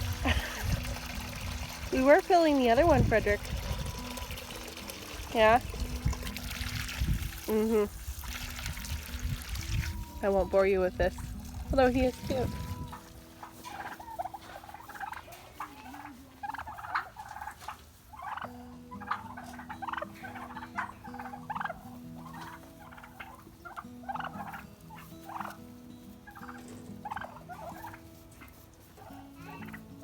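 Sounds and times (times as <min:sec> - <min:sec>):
turkeys yelping: 0:00.0 - 0:02.3, 0:03.1 - 0:05.6, 0:08.4 - 0:11.2, 0:11.8 - 0:25.6, 0:26.2 - 0:29.9
soft background music: 0:00.0 - 0:30.0.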